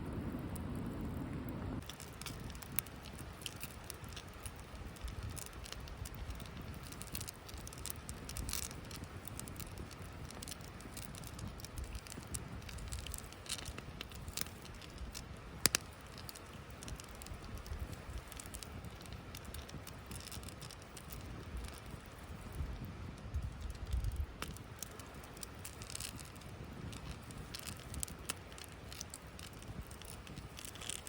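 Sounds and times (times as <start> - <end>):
low steady rumble: 0.0 - 6.8
campfire crackling and popping: 0.0 - 31.0.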